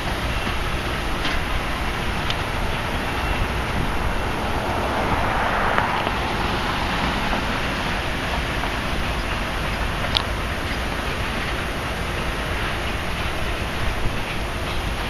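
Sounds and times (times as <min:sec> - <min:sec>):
wind on microphone: 0:00.0 - 0:10.8
passenger train rumbling: 0:00.0 - 0:15.0.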